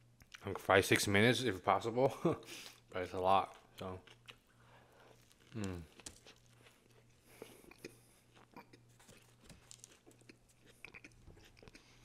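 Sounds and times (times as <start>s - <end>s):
person chewing sandwich: 2.6s - 12.0s.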